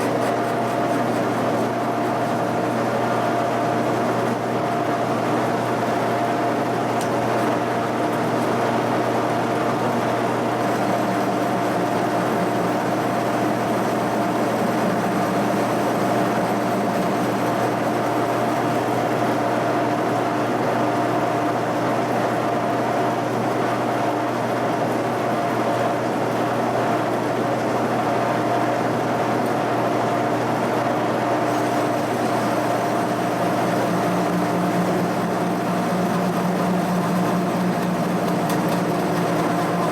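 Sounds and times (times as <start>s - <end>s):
machine tool motor hum: 0.0s - 19.6s, 31.2s - 39.9s.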